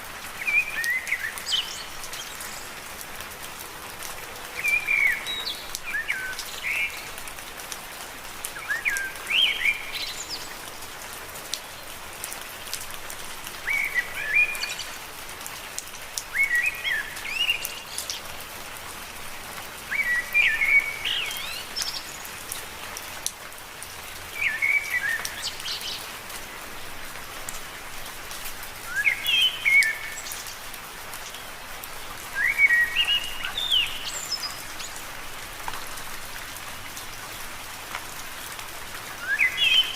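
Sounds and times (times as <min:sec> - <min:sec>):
rain pattering on leaves: 0:00.0 - 0:39.9
bird chirping: 0:32.4 - 0:35.0.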